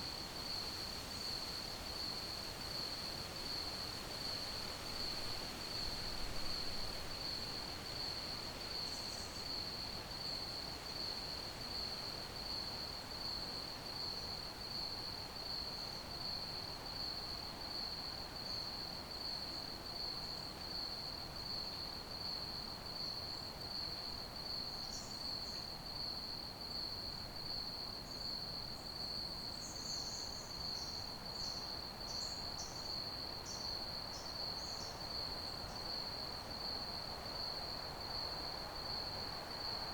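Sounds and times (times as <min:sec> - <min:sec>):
crickets chirping: 0:27.5 - 0:39.9.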